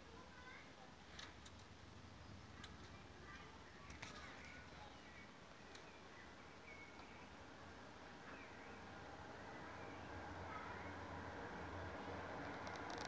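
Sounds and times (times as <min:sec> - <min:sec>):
bird chirps and twitters: 0:02.2 - 0:07.4.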